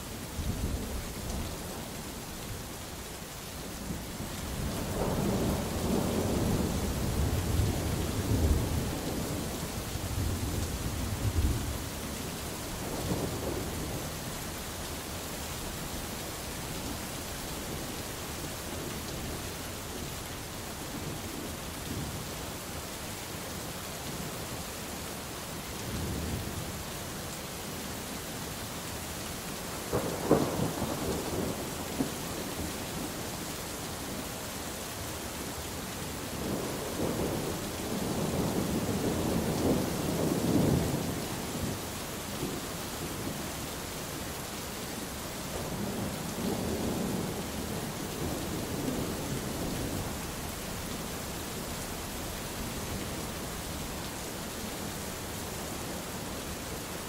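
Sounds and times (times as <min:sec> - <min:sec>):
steady rain: 0:00.0 - 0:57.0
rolling thunder: 0:29.9 - 0:33.2.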